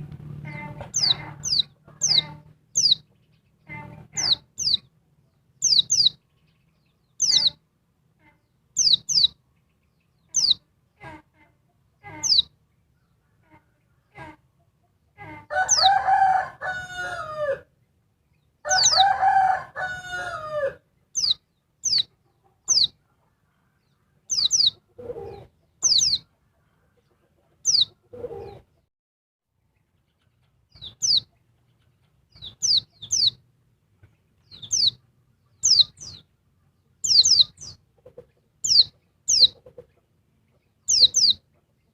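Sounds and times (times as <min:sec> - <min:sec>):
bird giving high chirps: 0:00.5 - 0:04.9, 0:05.6 - 0:06.2, 0:07.1 - 0:07.6, 0:08.8 - 0:09.4, 0:10.2 - 0:10.6, 0:12.1 - 0:12.5, 0:15.5 - 0:16.0, 0:18.7 - 0:19.2, 0:21.2 - 0:23.0, 0:24.3 - 0:26.3, 0:27.6 - 0:28.6, 0:30.8 - 0:31.3, 0:32.3 - 0:33.4, 0:34.5 - 0:35.0, 0:35.6 - 0:36.2, 0:37.0 - 0:37.8, 0:38.6 - 0:39.6, 0:40.8 - 0:41.4
rooster crowing: 0:15.4 - 0:17.7, 0:18.6 - 0:20.8.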